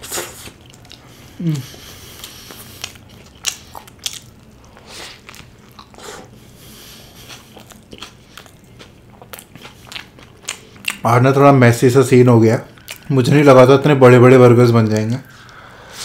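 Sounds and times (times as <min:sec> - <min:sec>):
biting crunches: 0:02.2 - 0:06.0.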